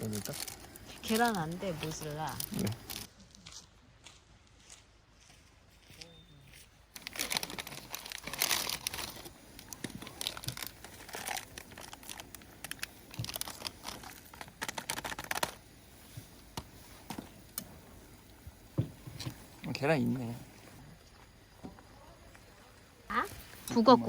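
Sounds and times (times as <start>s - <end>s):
plastic packaging crinkling: 0.0s - 3.1s, 6.9s - 17.6s.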